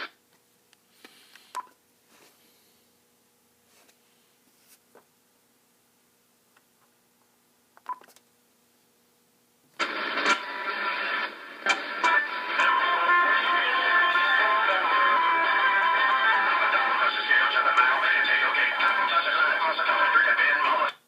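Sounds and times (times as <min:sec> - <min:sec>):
music from radio station: 0:09.8 - 0:21.0.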